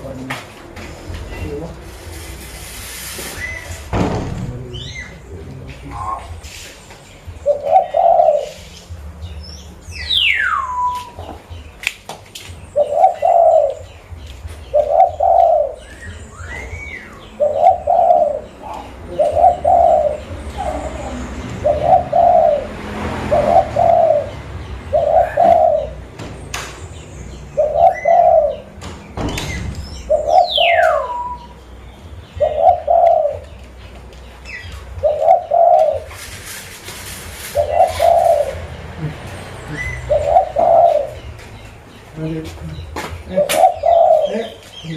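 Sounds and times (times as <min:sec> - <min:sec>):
dove cooing: 0:04.6 - 0:09.0, 0:12.8 - 0:26.2, 0:27.6 - 0:28.8, 0:30.0 - 0:31.6, 0:32.4 - 0:33.7, 0:34.6 - 0:41.5, 0:42.8 - 0:44.9.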